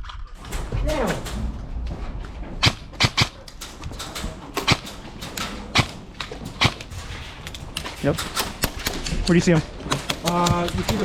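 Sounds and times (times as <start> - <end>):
airsoft gun shots: 2.6 - 3.3.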